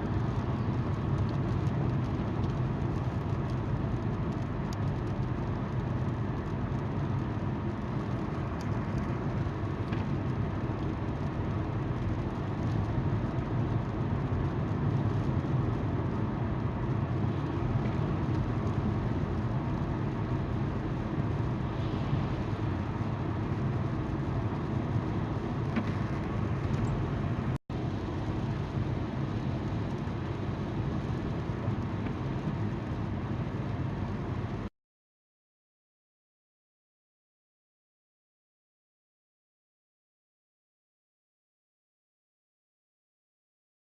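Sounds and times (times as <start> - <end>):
car engine hum: 0.0 - 34.6
car tyres on road: 0.0 - 34.7.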